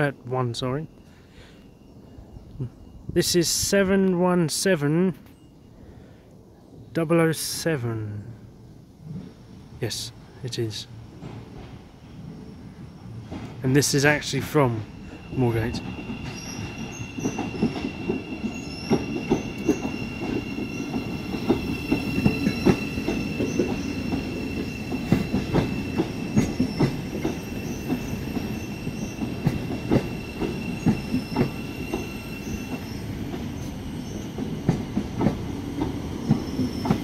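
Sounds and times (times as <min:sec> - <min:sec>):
high-pitched wheel squeal: 0:15.2 - 0:34.2
train wheels clicking over rail joints: 0:15.6 - 0:37.0.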